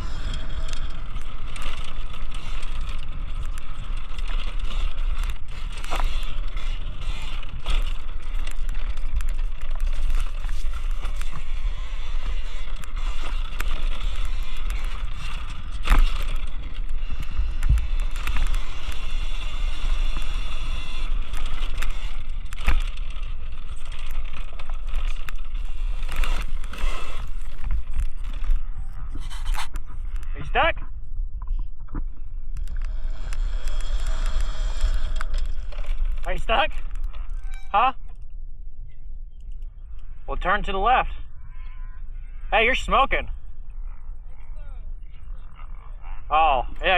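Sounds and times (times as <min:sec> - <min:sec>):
electric motor whine: 0:00.0 - 0:30.5, 0:32.5 - 0:37.7
wind rumbling on microphone: 0:00.0 - 0:46.9.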